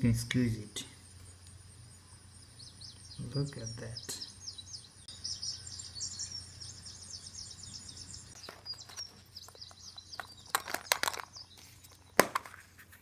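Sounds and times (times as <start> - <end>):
small bird chirping: 0.0 - 13.0
plastic toys clicking: 8.8 - 11.4.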